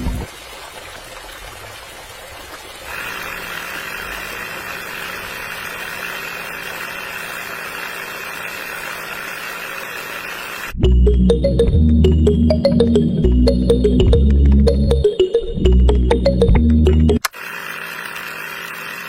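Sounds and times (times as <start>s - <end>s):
small motor whirring: 2.9s - 10.8s, 17.2s - 19.0s.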